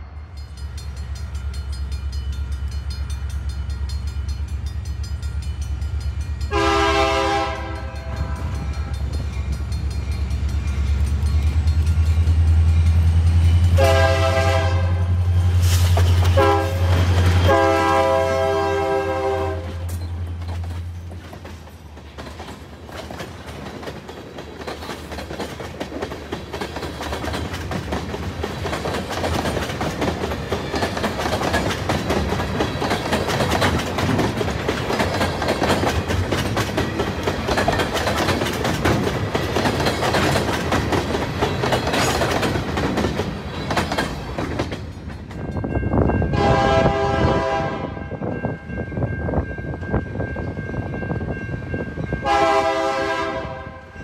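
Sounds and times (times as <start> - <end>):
diesel locomotive engine rumble: 0.0 - 54.0
wheels clicking on rail joints: 0.4 - 13.8, 19.6 - 46.2
train horn blasts: 6.5 - 9.0, 13.6 - 15.5, 16.3 - 20.0, 46.2 - 48.3, 52.2 - 54.0.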